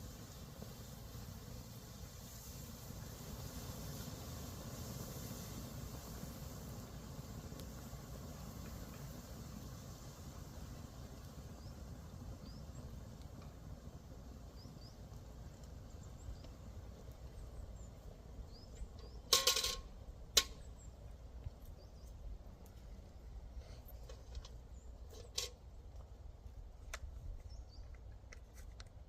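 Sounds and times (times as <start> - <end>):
low outdoor rumble: 0.0 - 29.0
metallic clatter: 19.1 - 20.6, 25.1 - 25.6.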